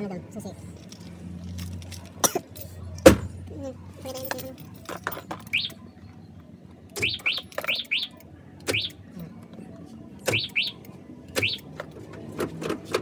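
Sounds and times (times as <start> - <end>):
small bird chirping: 5.5 - 6.2, 7.0 - 9.0.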